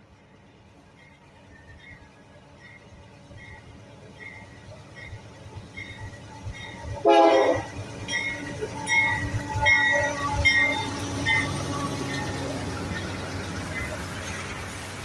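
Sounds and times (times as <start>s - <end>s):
train rumbling: 0.0s - 15.0s
high ringing tone: 5.1s - 12.5s
train horn blast: 7.0s - 7.8s.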